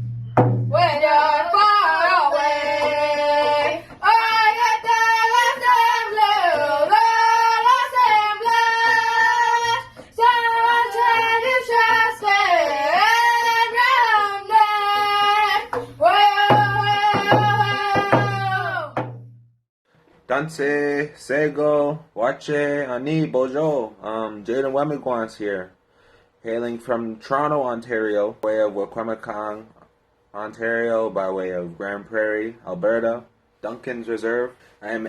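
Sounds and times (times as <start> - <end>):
hand drum beating: 0.0 - 0.8, 14.9 - 19.6.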